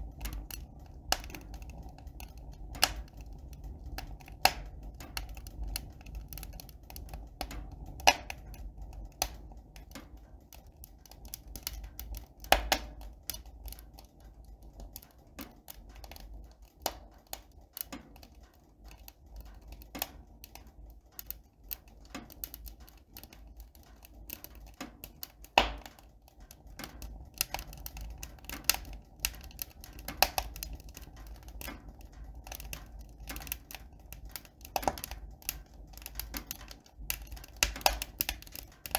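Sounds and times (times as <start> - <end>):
steady low rumble: 0.0 - 13.7
light clicks and taps: 0.0 - 38.9.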